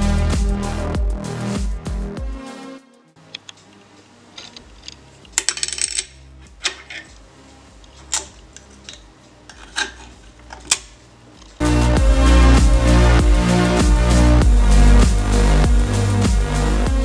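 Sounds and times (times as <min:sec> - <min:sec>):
loud electronic music: 0:00.0 - 0:02.9, 0:11.6 - 0:17.0
plastic pieces clicking: 0:04.4 - 0:07.1.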